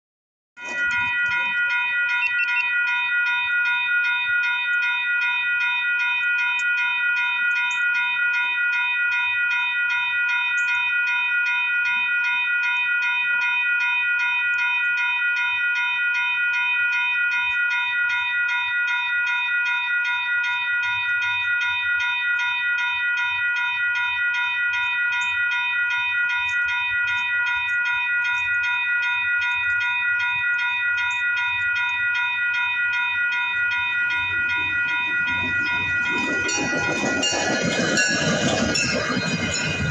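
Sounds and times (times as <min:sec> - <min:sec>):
railroad crossing bell ringing: 0:00.6 - 0:39.9.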